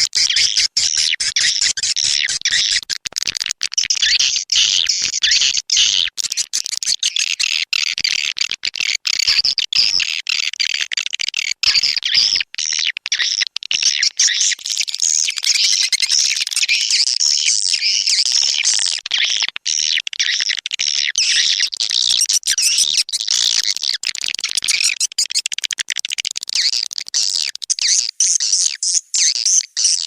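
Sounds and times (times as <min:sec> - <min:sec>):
swiftlets twittering chirps and trills: 0:00.0 - 0:02.9, 0:12.6 - 0:30.0.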